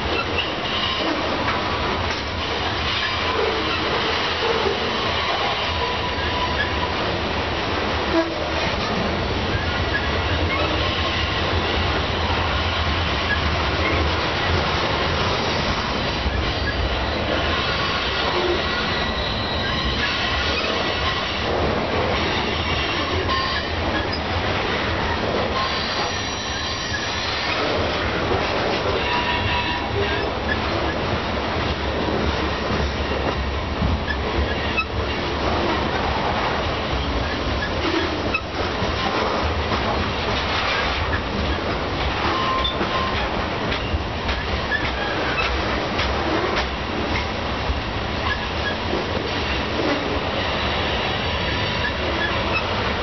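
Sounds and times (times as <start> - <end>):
freight train wheels rumbling: 0.0 - 53.0
high-pitched wheel squeals: 17.5 - 21.3, 22.8 - 24.2, 25.6 - 27.6, 42.3 - 43.2.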